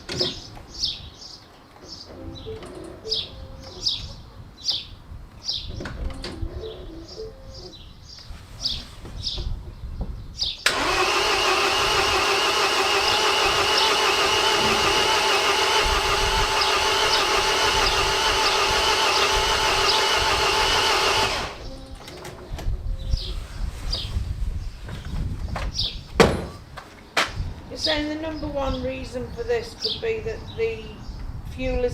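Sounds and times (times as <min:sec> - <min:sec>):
starter motor cranking engine: 0:10.6 - 0:21.8.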